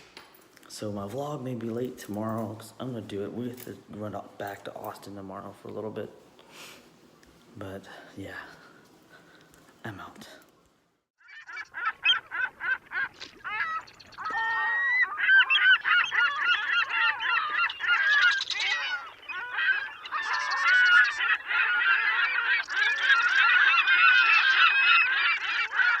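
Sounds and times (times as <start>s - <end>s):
geese honking: 11.2s - 26.0s.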